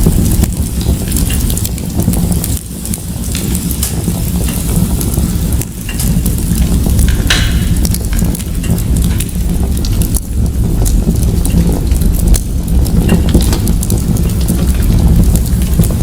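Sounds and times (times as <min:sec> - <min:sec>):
fire crackling in a fireplace: 0:00.0 - 0:16.0.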